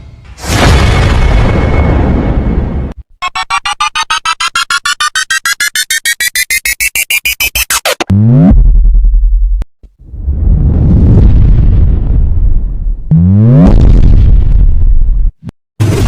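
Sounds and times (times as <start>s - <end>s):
pulsing electronic riser tone: 3.2s - 9.5s.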